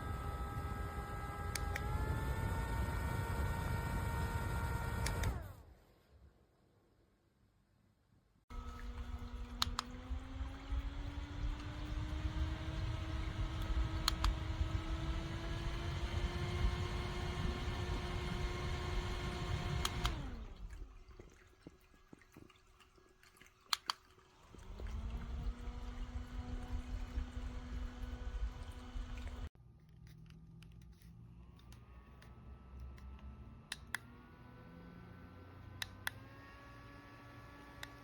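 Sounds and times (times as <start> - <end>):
handheld fan motor whirring: 0.0 - 5.7, 8.5 - 20.7, 24.5 - 29.5
fan button clicks: 1.4 - 2.8, 4.6 - 5.5, 8.6 - 10.2, 11.1 - 15.0, 19.3 - 20.2.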